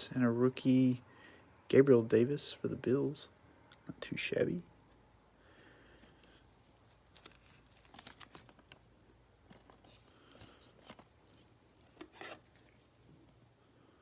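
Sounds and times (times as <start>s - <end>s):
wrappers crinkling: 6.8s - 12.9s.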